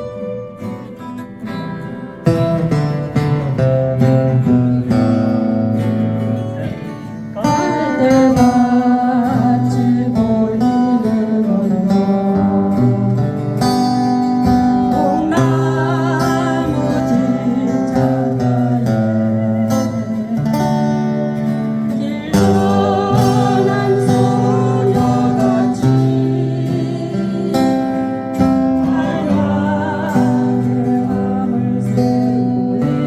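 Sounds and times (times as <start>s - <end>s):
acoustic guitars strumming: 0.0s - 33.0s
person singing: 6.6s - 13.2s, 14.5s - 33.0s.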